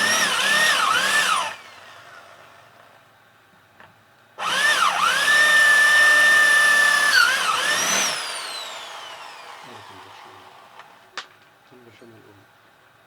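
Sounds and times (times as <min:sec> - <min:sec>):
electric drill whining: 0:00.0 - 0:02.6, 0:04.4 - 0:11.1.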